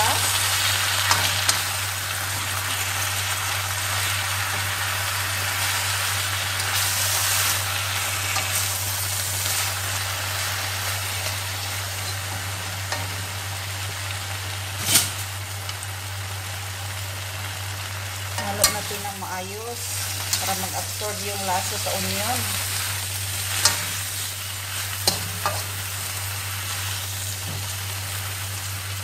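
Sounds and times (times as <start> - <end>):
vegetables sizzling in a wok: 0.0 - 29.0.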